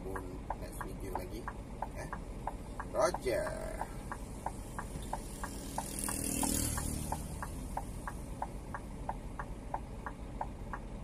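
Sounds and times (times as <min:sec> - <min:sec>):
truck engine humming: 0:00.0 - 0:11.0
turn signal relay ticking: 0:00.0 - 0:11.0.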